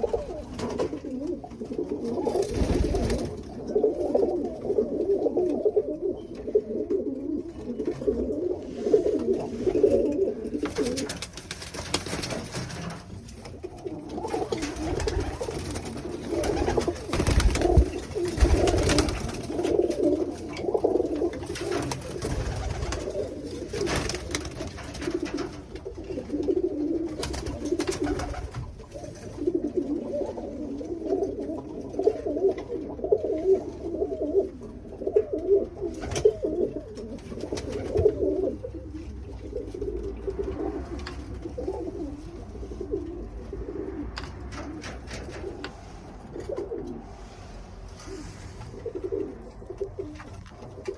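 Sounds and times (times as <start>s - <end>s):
pigeons cooing: 0.0s - 50.9s
rustling: 7.8s - 26.4s.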